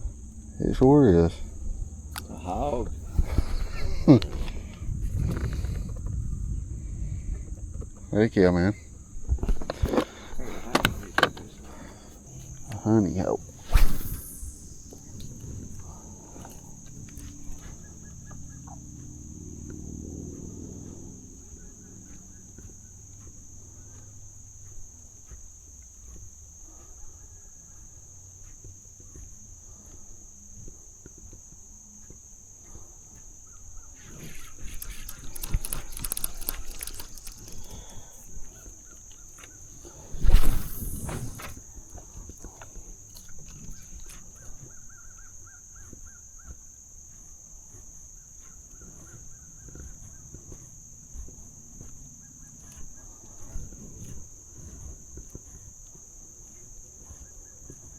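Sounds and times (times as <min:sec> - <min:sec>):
insects droning: 0:00.0 - 0:57.9
rustling handling noise: 0:34.2 - 0:38.6.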